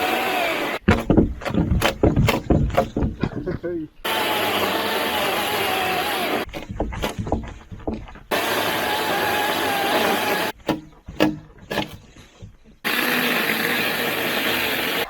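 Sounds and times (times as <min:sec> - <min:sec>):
chainsaw cutting log: 0:00.0 - 0:02.9, 0:04.0 - 0:07.3, 0:08.3 - 0:12.2, 0:12.8 - 0:15.0
knocks and clicks: 0:00.8 - 0:03.6, 0:06.4 - 0:08.6, 0:10.5 - 0:12.8.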